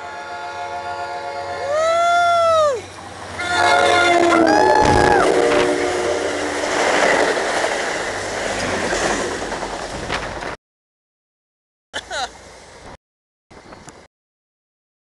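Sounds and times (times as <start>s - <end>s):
train air horn blasts: 0.0s - 1.8s, 3.3s - 7.1s
train cars rushing past: 0.4s - 10.6s.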